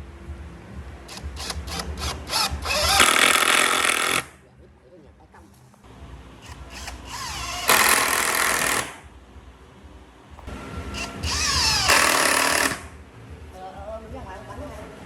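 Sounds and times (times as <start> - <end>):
power tool cutting wood: 1.1 - 4.3, 6.4 - 9.0, 10.9 - 12.9.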